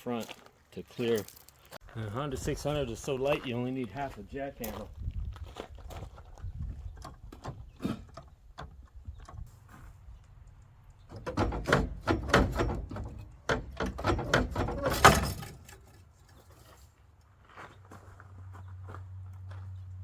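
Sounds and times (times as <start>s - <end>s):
jack pumping metallic clanks: 11.0s - 16.8s.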